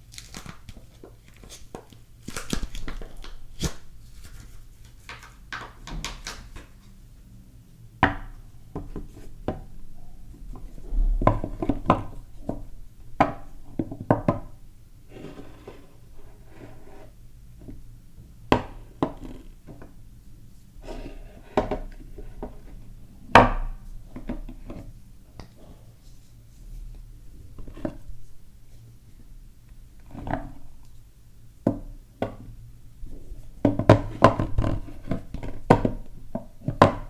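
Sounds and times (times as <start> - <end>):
wrappers rustling: 0.0 - 6.9
soap bars tapping and knocking: 5.0 - 6.8, 8.0 - 9.7, 11.4 - 14.6, 18.5 - 20.0, 31.6 - 32.6, 33.6 - 37.0.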